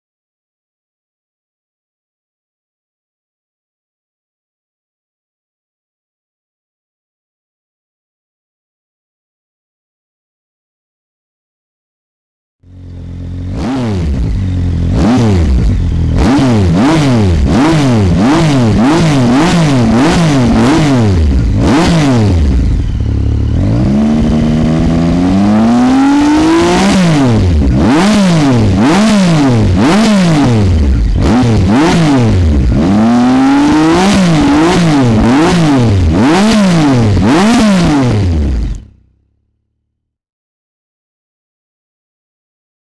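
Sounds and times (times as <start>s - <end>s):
motorcycle engine revving: 12.6s - 39.9s.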